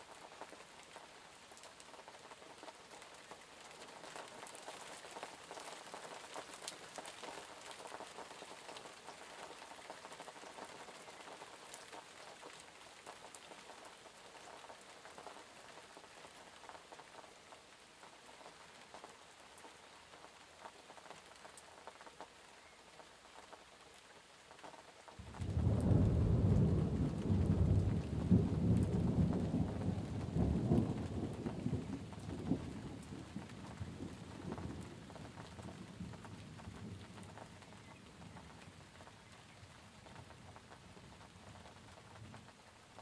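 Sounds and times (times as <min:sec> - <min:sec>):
steady rain falling: 0:00.0 - 0:43.0
thunder rumbling: 0:25.2 - 0:37.6.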